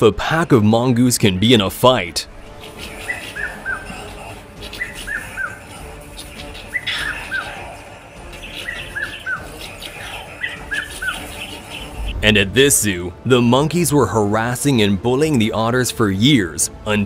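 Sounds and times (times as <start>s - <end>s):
bird calling high notes: 2.4s - 12.2s.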